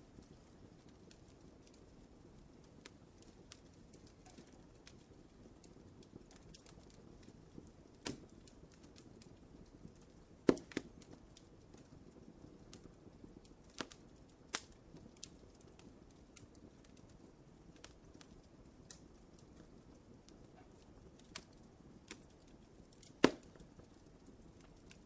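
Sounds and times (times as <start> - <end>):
wood fire crackling: 0.0 - 25.0
wood pops: 10.5 - 10.8, 23.1 - 23.6.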